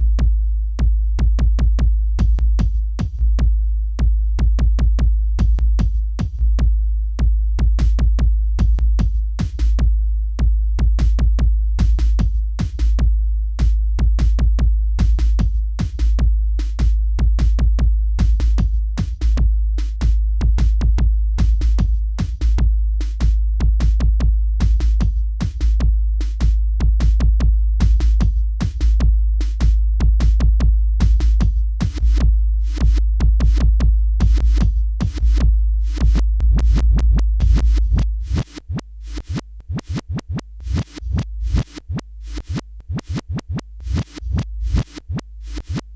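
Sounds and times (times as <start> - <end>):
deep bass: 0.0 - 45.9
drum machine hits: 14.1 - 45.9.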